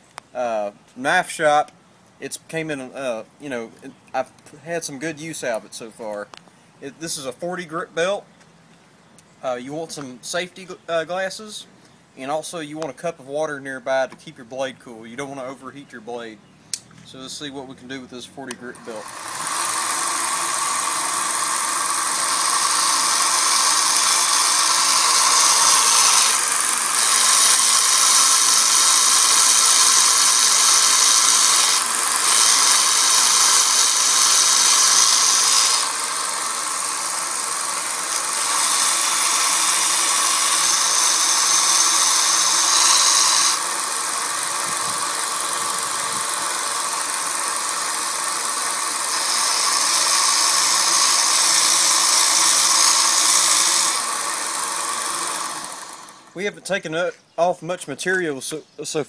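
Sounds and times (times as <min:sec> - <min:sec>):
belt sander motor running: 0:18.4 - 0:56.4
knife blade grinding on sander: 0:18.4 - 0:56.4.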